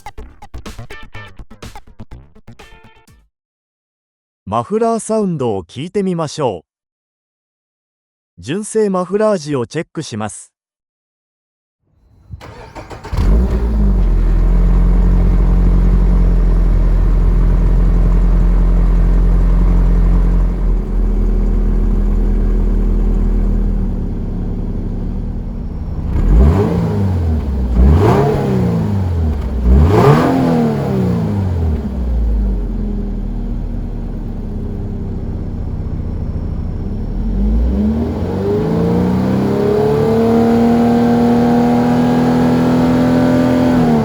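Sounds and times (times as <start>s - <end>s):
car engine starting and idling: 12.1s - 44.0s
engine revving: 12.3s - 44.0s.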